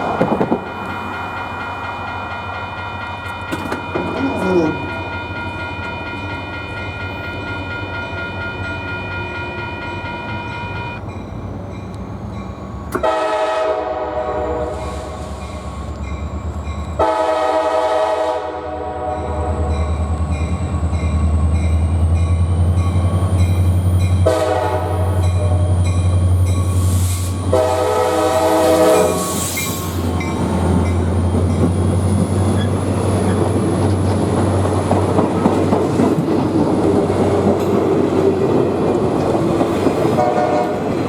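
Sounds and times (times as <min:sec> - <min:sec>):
crossing warning bell ringing: 0:00.0 - 0:41.0
locomotive air horn blasts: 0:13.0 - 0:15.2, 0:17.0 - 0:19.7, 0:24.2 - 0:25.6, 0:27.5 - 0:29.9, 0:40.2 - 0:40.9.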